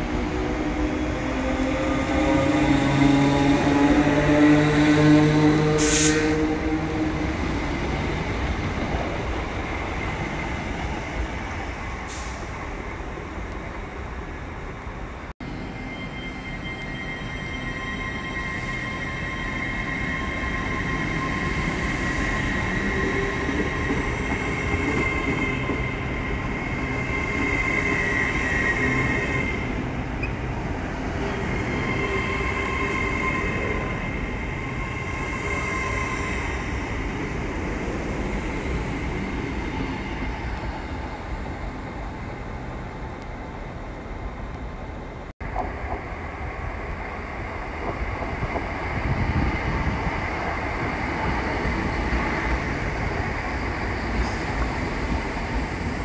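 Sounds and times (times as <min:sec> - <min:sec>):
train rumbling past: 0:00.0 - 0:56.0
high-pitched train whine: 0:15.4 - 0:41.4.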